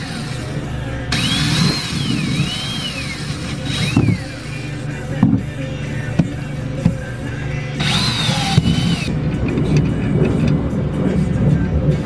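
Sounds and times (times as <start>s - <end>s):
cordless drill motor whine: 0.0s - 4.9s, 7.8s - 9.1s.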